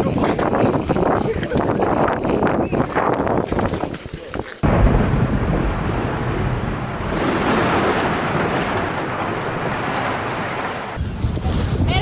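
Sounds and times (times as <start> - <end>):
deep storm rumble with hiss: 4.6 - 12.0.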